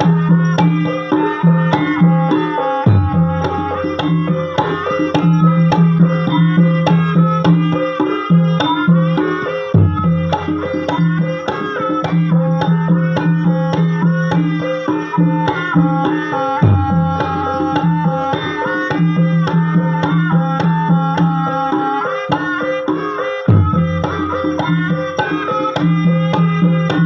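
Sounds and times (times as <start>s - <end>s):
gamelan music: 0.0s - 27.0s
hand drum strokes: 0.0s - 27.0s.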